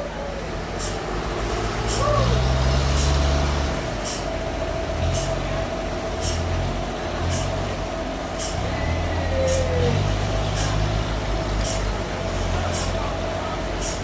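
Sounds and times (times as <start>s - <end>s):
heavy diesel machinery running: 0.0s - 14.0s
short hissing ticks: 6.2s - 6.5s, 8.4s - 8.6s.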